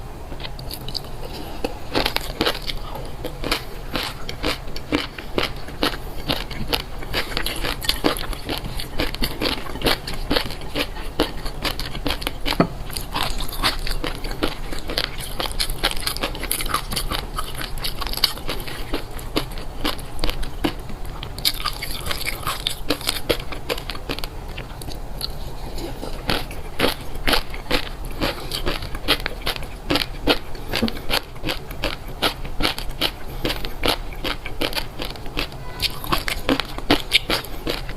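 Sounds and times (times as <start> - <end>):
person chewing crisp food: 0.3 - 37.9.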